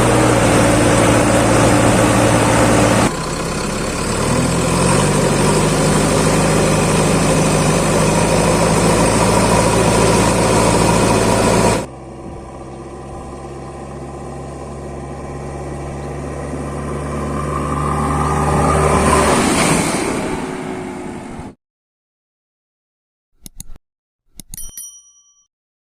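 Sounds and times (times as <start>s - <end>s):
diesel engine running: 0.0s - 19.4s.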